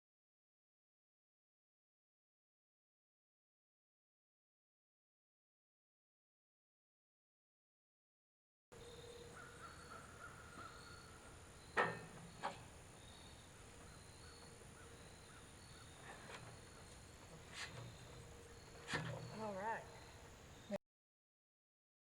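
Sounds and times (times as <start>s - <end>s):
birds calling: 8.8s - 20.8s.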